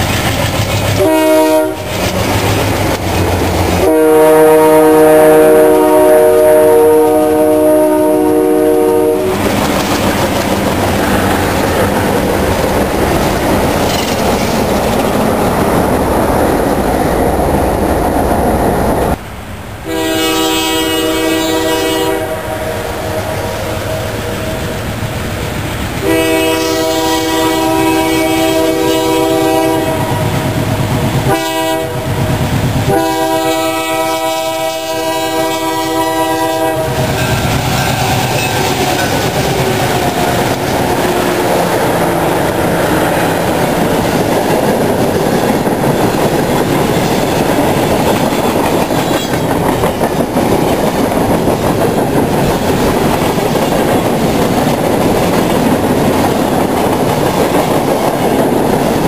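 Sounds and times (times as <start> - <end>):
train rumble: 0.0 - 59.0
locomotive horn blasts: 1.0 - 2.0, 3.8 - 9.5, 19.8 - 24.8, 26.0 - 30.5, 31.3 - 32.2, 32.9 - 42.4.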